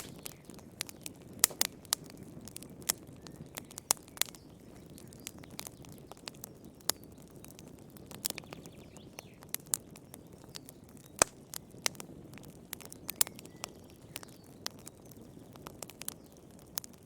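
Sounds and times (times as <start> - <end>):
loud fire pop: 0.0 - 0.4
wood fire crackling: 0.0 - 17.0.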